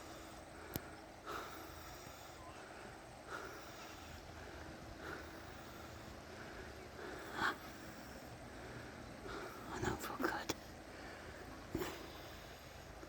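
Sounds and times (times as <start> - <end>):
faint nasal breathing: 0.0 - 13.0
low steady hum: 0.0 - 13.0.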